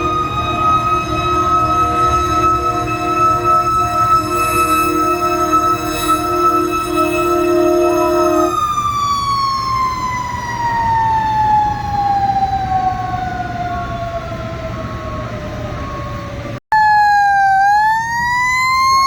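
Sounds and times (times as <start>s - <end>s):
horn-like chord: 0.0s - 8.6s
electronic siren wail: 0.0s - 19.0s
mechanical siren winding down: 0.0s - 19.0s.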